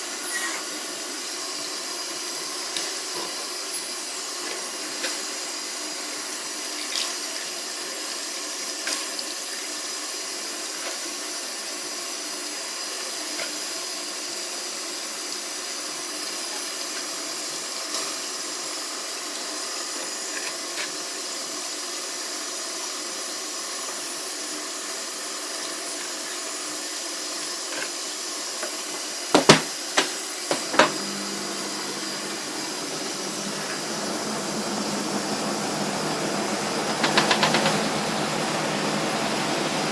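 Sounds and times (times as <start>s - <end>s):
water running in washing machine: 0.0s - 39.9s
motor humming: 30.5s - 39.9s.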